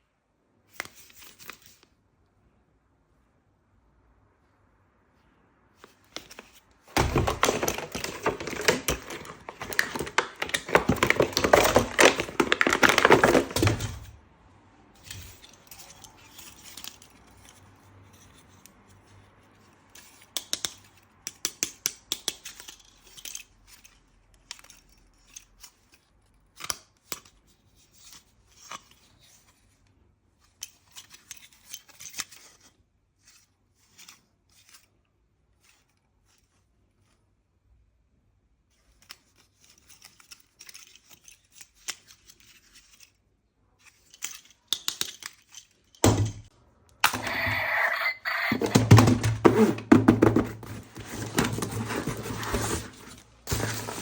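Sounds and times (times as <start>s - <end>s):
packaging tearing and crinkling: 6.4s - 14.1s, 50.4s - 54.0s
small hard parts rattling: 6.4s - 14.1s.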